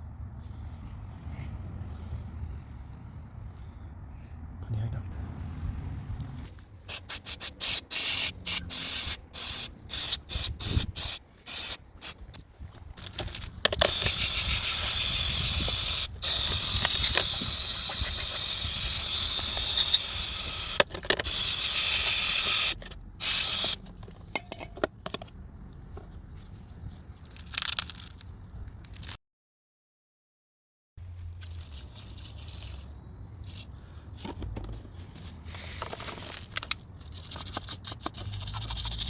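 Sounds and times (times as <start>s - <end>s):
aerosol spraying: 13.9s - 23.8s.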